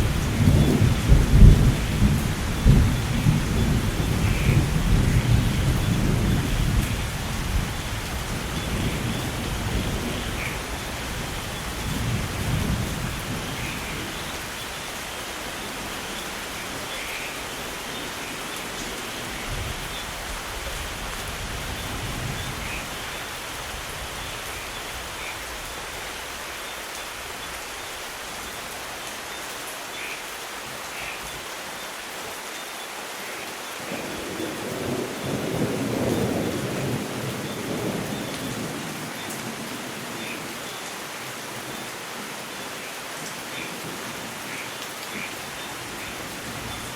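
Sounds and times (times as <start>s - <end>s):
low rumble of thunder: 0.0s - 14.6s, 19.2s - 23.1s, 33.9s - 40.4s
steady rain falling: 0.0s - 46.9s.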